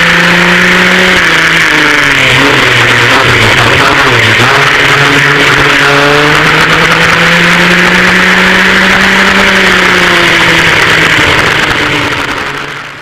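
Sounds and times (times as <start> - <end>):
kart engines running loud: 0.0 - 13.0.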